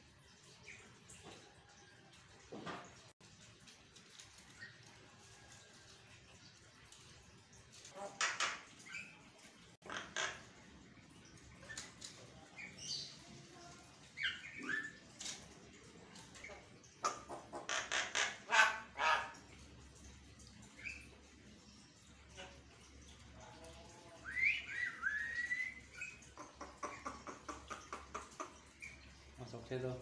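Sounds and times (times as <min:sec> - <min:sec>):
bird harsh rasping calls: 0:17.0 - 0:19.4.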